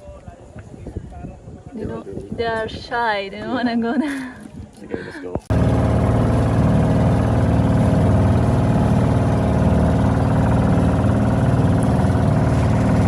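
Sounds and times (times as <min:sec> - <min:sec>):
boat engine running: 0:05.5 - 0:13.0.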